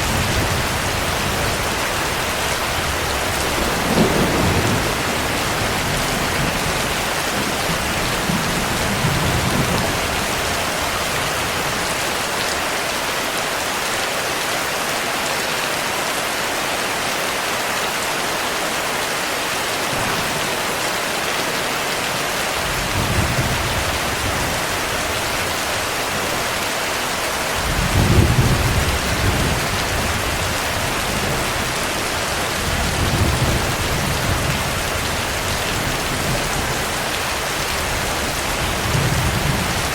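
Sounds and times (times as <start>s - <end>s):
low thunder rumbles: 0.0s - 12.1s, 27.4s - 39.9s
heavy rain: 0.0s - 39.9s.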